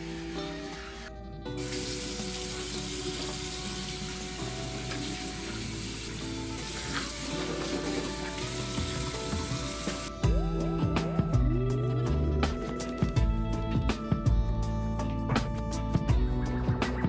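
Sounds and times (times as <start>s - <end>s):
background music: 0.0s - 17.0s
tap water running into sink: 1.6s - 10.1s.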